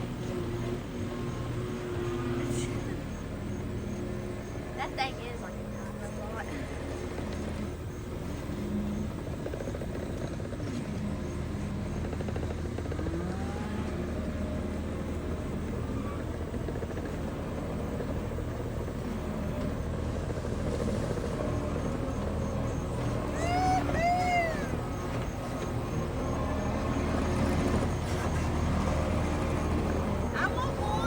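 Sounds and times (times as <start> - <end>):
farm machine engine running: 0.0 - 31.0.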